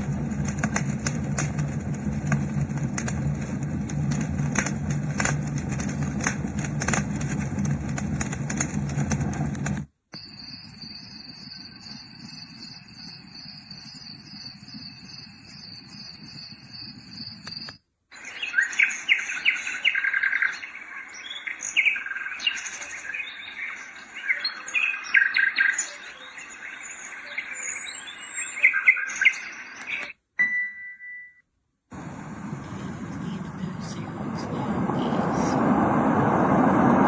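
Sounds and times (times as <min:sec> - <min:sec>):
low hum: 0:00.0 - 0:17.8, 0:31.9 - 0:37.0
high even chirring tone: 0:10.2 - 0:17.8
recorded birdsong chirps and trills: 0:10.2 - 0:30.2.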